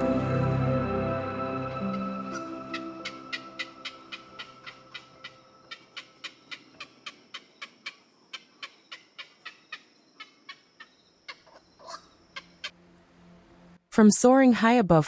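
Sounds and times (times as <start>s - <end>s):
bird short sharp calls: 2.3s - 12.7s.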